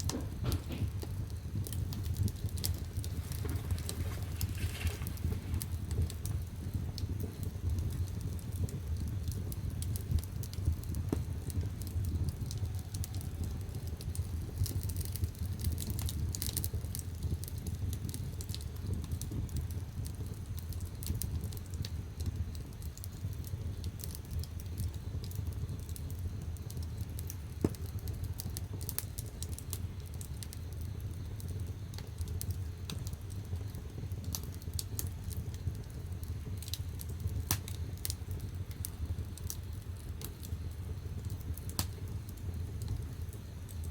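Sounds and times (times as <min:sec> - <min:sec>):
fire low rumble: 0:00.0 - 0:43.9
firewood crackling and popping: 0:00.0 - 0:43.9.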